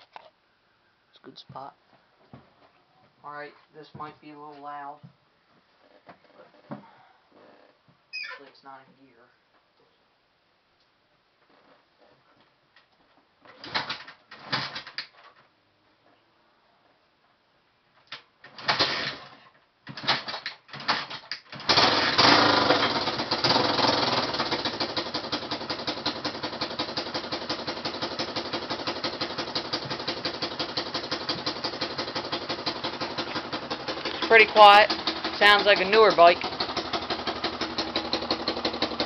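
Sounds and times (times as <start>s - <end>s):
motorcycle engine kick-starting: 18.6s - 19.3s, 19.9s - 39.0s
motorcycle engine idling: 21.7s - 39.0s.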